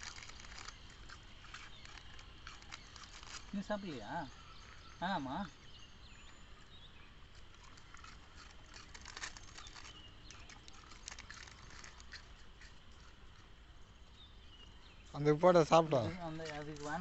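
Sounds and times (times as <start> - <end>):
puppies pattering and clicking: 0.0 - 3.6, 7.3 - 13.6.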